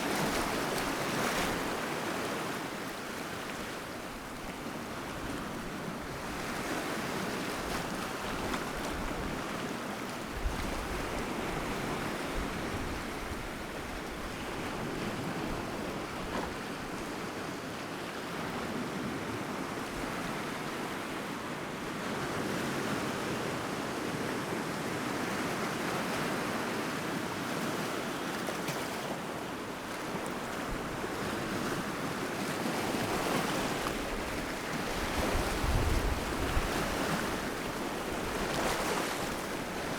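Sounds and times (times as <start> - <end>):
sea waves washing onto shore: 24.3 - 39.9.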